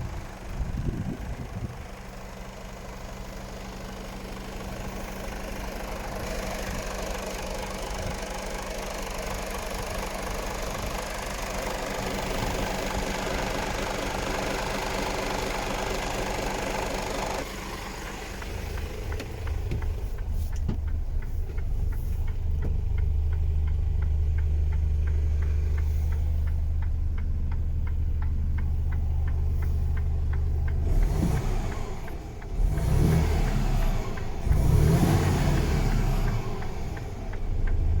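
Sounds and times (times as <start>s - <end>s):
truck diesel engine idling: 0.0s - 38.0s
truck engine revving: 30.6s - 37.1s.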